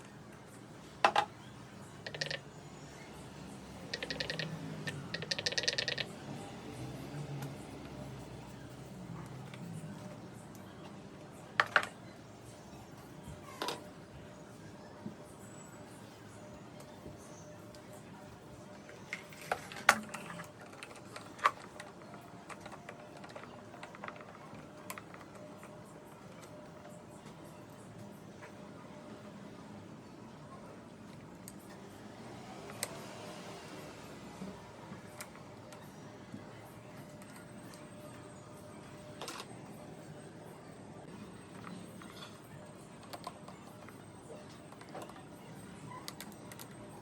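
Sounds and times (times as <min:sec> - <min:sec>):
rapid mechanical clicking: 0:03.6 - 0:06.8.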